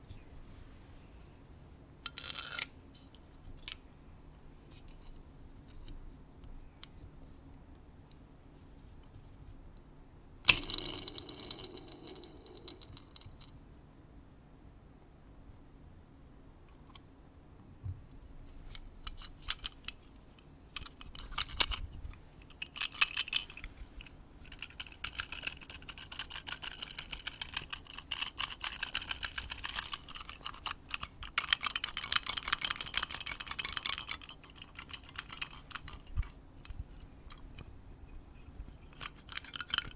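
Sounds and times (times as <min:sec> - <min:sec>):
crickets chirping: 0:00.0 - 0:39.9
scratching and clicking: 0:18.5 - 0:39.9.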